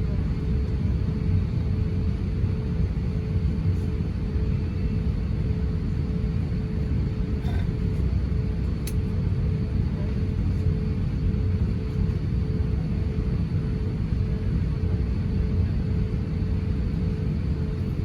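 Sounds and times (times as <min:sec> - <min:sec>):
airliner cabin engine rumble: 0:00.0 - 0:18.0.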